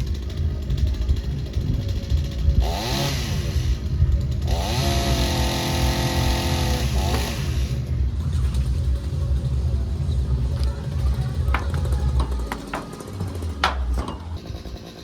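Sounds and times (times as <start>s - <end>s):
chainsaw revving: 0.0s - 7.9s.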